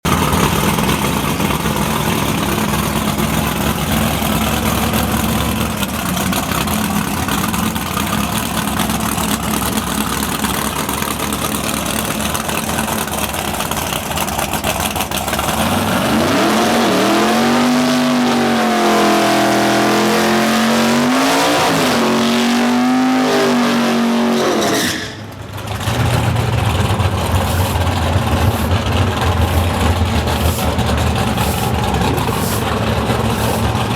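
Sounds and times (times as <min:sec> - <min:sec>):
engine idling: 0:00.0 - 0:20.6, 0:25.0 - 0:33.9
drag car engine revving: 0:00.0 - 0:33.9.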